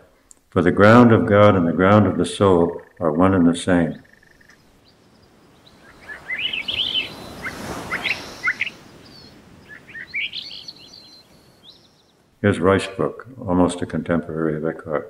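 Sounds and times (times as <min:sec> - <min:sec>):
small birds chirping: 0:02.0 - 0:13.0
soft hiss: 0:03.6 - 0:13.0.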